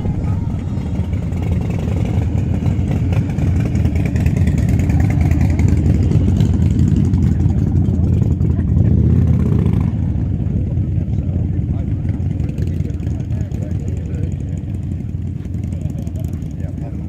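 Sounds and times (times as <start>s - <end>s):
motorcycle engine rumbling: 0.0s - 17.0s.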